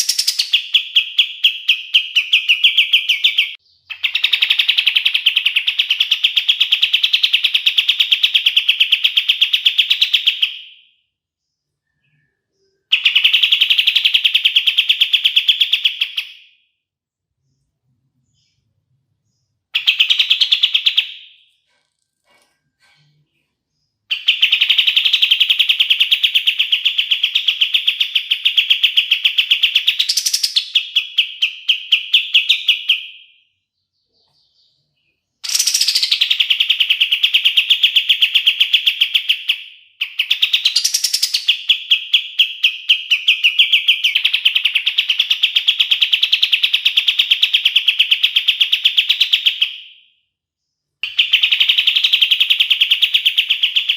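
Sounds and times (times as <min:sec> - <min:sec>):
songbird trilling: 0:35.4 - 0:49.7.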